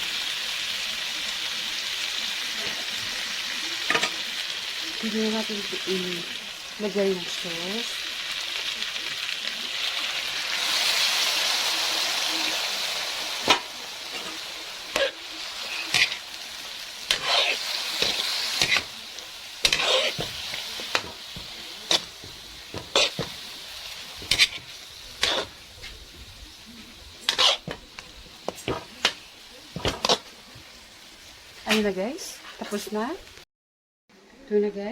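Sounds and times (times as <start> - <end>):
food sizzling in a wok: 0.0 - 33.4
spatula scraping a pan: 13.4 - 19.0, 19.6 - 26.0, 26.8 - 29.2, 29.8 - 30.3.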